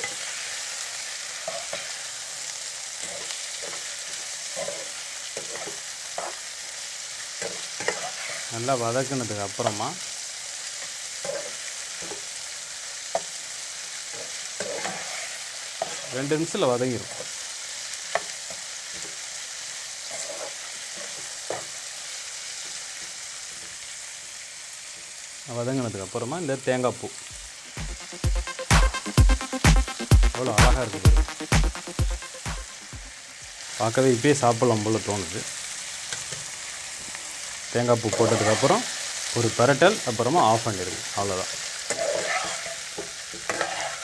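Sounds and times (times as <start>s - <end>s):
vegetables sizzling in oil: 0.0s - 44.0s
stirring scrapes in pan: 3.0s - 6.5s, 7.4s - 8.5s, 11.2s - 12.3s, 14.1s - 16.2s, 17.0s - 17.4s, 20.0s - 21.8s, 38.1s - 39.2s, 41.6s - 44.0s.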